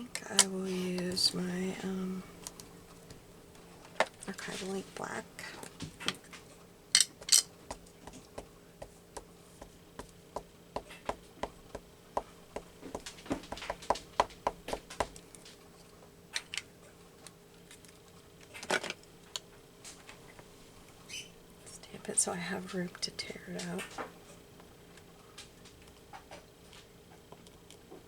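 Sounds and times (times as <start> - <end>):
rubber stamp tapping on ink pad: 7.7 - 15.2
scattered knocks: 9.6 - 15.2.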